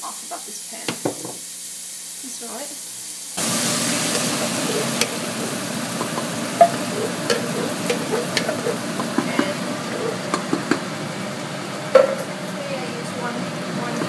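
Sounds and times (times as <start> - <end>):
garlic and onions sizzling: 0.0 - 14.0
utensil scraping pan: 4.0 - 10.9.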